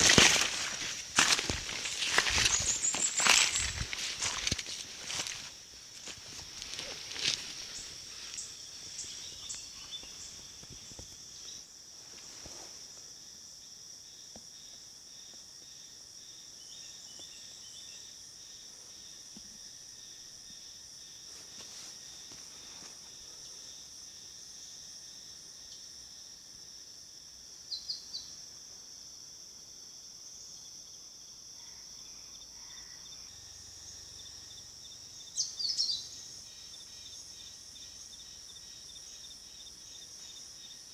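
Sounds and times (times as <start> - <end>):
high-pitched insect drone: 0.0 - 10.4.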